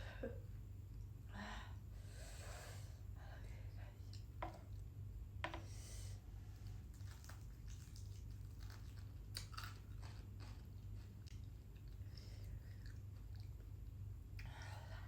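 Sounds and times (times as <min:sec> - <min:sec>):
crunching fried chicken: 0:06.6 - 0:13.5.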